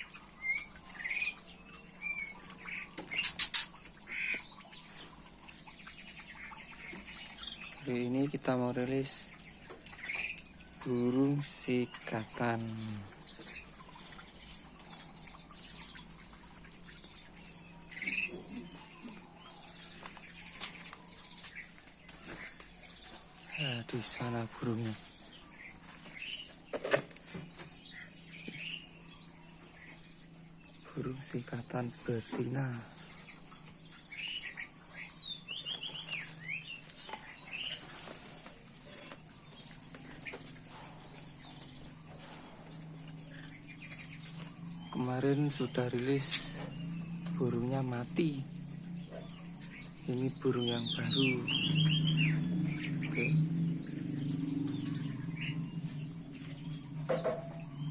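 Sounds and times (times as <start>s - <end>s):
small birds chirping: 0.0s - 57.9s
steady low hum: 9.2s - 57.9s.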